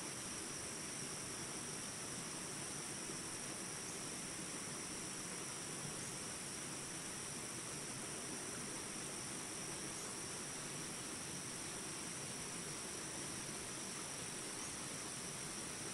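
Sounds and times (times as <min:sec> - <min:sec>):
water rushing in a stream: 0:00.1 - 0:15.9.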